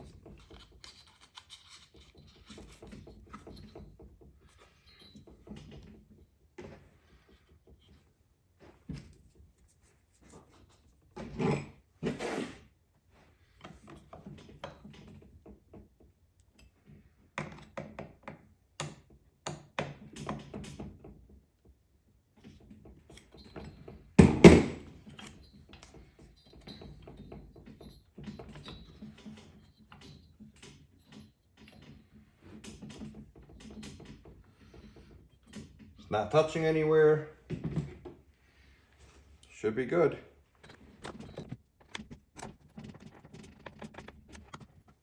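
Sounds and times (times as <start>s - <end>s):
tools clicking and tapping on metal: 0.0s - 6.8s, 17.4s - 21.1s, 22.4s - 38.2s, 39.4s - 45.0s
loud thunk: 24.2s - 24.8s.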